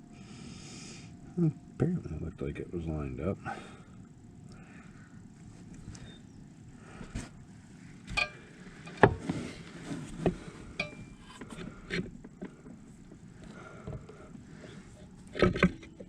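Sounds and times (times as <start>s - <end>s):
metallic clinks and knocks: 8.1s - 9.2s, 10.7s - 12.8s.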